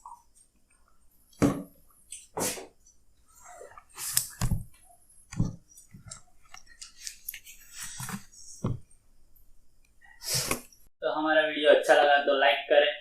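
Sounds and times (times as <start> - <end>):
person sniffing and breathing: 2.4 - 2.8, 10.0 - 10.7.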